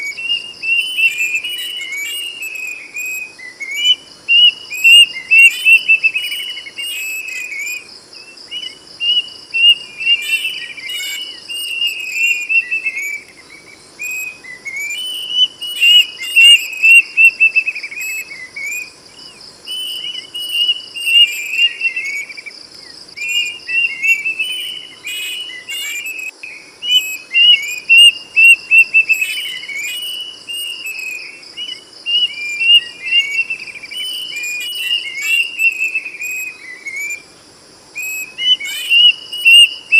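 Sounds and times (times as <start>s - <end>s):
cuckoo whistled song: 0.0s - 22.5s, 23.1s - 37.2s, 38.0s - 39.9s
high insect trill: 0.0s - 39.9s.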